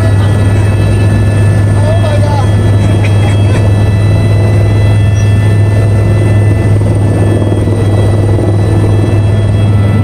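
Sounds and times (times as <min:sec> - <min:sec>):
helicopter drone inside cabin: 0:00.0 - 0:10.0
high-pitched whines: 0:00.0 - 0:10.0.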